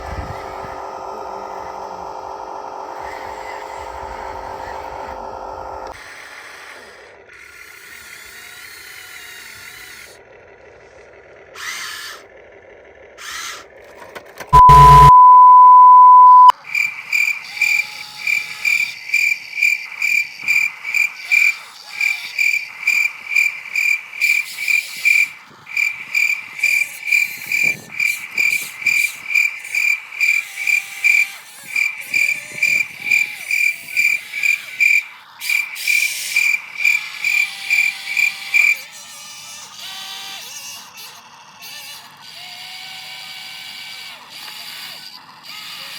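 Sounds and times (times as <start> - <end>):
steady single-pitch beep: 14.6 - 16.5.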